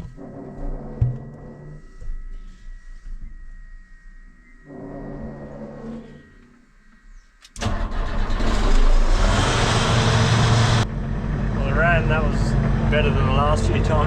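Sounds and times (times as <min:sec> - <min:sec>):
diesel engine starting and running: 0:07.5 - 0:14.0.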